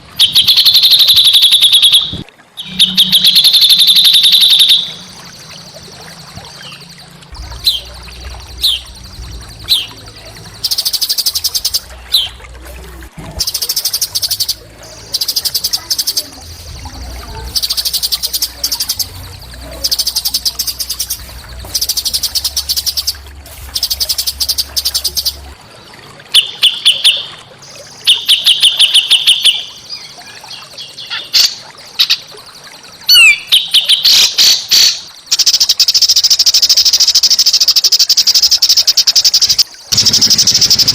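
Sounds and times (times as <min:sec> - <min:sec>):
small songbird singing: 0:00.2 - 0:12.4.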